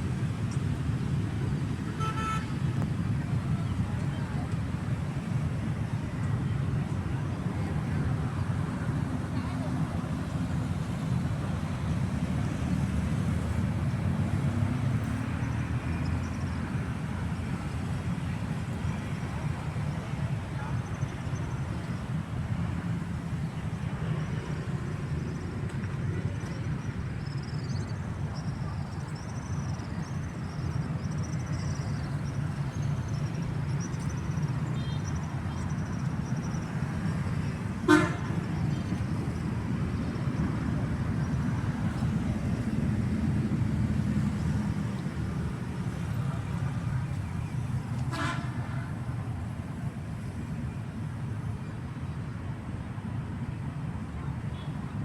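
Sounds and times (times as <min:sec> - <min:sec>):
traffic rumble: 0:00.0 - 0:55.0
car horn toot: 0:02.0 - 0:02.5, 0:37.9 - 0:38.4.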